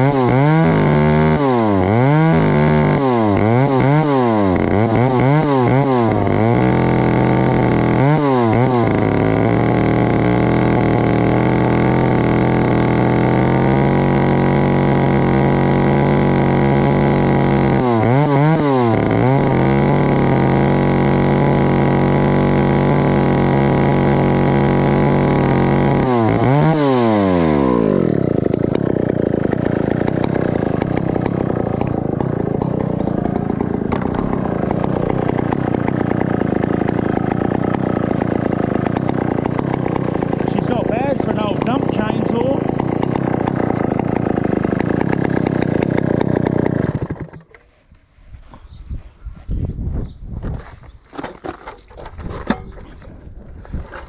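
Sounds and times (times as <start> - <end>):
chainsaw revving: 0.0 - 48.0
person speaking: 40.3 - 42.8.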